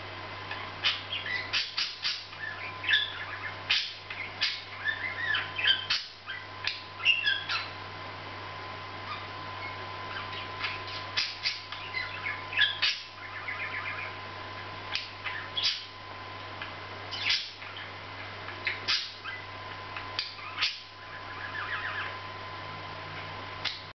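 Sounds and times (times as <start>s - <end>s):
budgerigar chirps: 0.5s - 7.8s, 9.1s - 14.2s, 14.9s - 15.9s, 17.1s - 17.9s, 18.6s - 19.5s, 20.2s - 22.2s.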